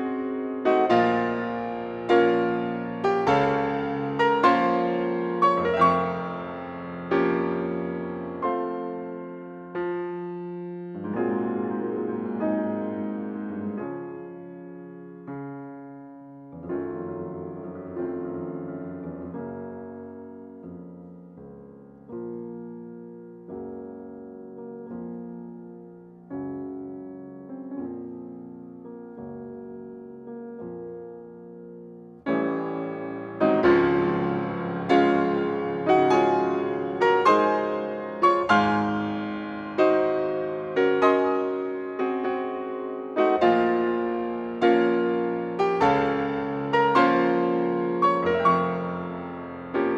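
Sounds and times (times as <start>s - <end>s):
soft piano chords: 0.0s - 49.9s.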